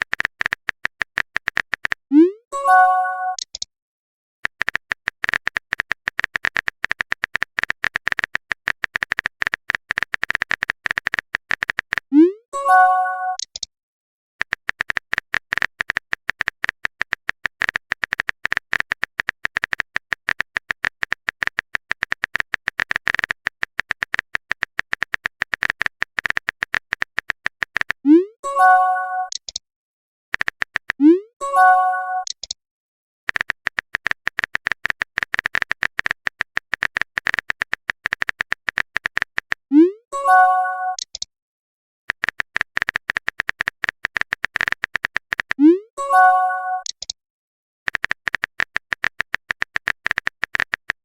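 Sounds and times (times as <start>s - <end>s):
phone keyboard clicking: 0.0s - 2.0s, 4.4s - 12.1s, 14.4s - 28.0s, 29.3s - 29.6s, 30.4s - 31.0s, 32.2s - 32.6s, 33.3s - 39.6s, 42.1s - 45.6s, 47.9s - 51.0s
message notification chime: 2.6s - 3.4s, 12.6s - 13.4s, 28.5s - 29.3s, 31.4s - 32.2s, 40.2s - 41.0s, 46.0s - 46.9s.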